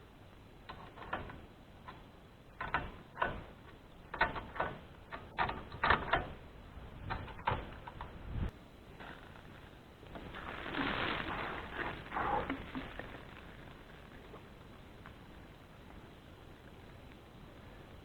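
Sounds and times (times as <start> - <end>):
sharp clicks and knocks: 0.6 - 6.4, 7.0 - 8.2.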